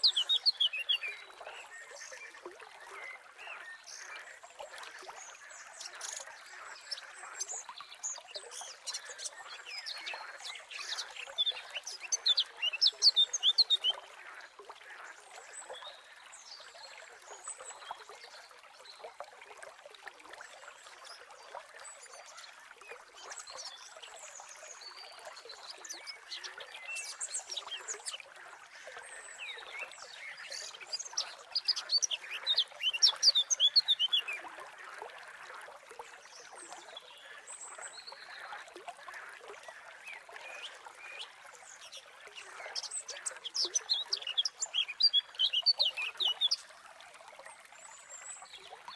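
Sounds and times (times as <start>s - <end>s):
small birds chirping: 30.3s - 34.2s.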